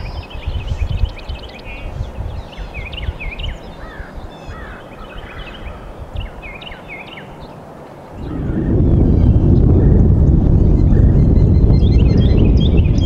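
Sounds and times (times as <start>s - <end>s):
small birds chirping: 0.0s - 13.0s
uneven low rumble: 8.1s - 13.0s.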